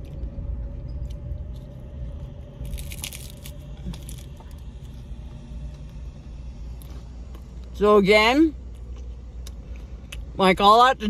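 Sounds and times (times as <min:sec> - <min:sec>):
low steady hum: 0:00.0 - 0:11.0
person crunching taco shell: 0:01.0 - 0:05.1.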